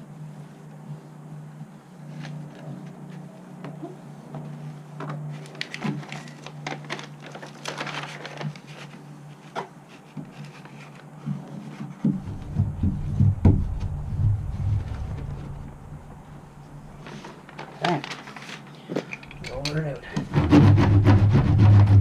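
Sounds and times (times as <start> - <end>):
mat crinkling and clicking: 2.1 - 14.0, 16.7 - 20.3.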